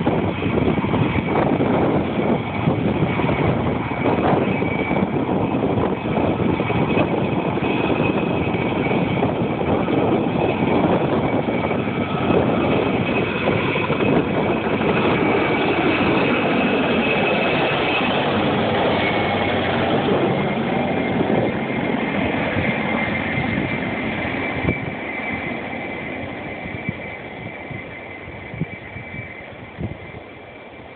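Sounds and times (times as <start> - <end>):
helicopter high whine: 0.0 - 30.9
helicopter rotor and engine: 0.0 - 30.9.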